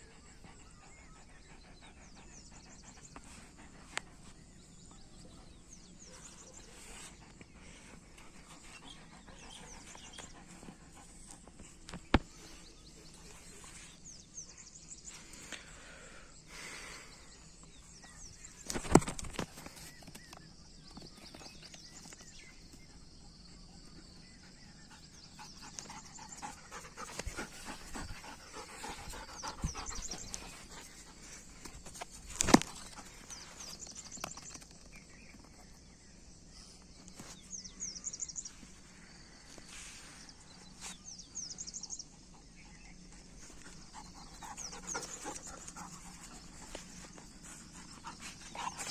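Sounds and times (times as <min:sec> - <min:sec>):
dog panting: 0:08.5 - 0:11.5, 0:24.9 - 0:31.6, 0:43.6 - 0:48.9.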